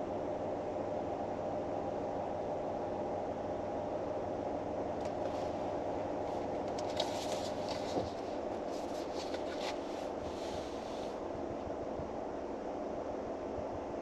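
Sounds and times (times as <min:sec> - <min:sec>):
soft rustles: 0:06.2 - 0:11.2.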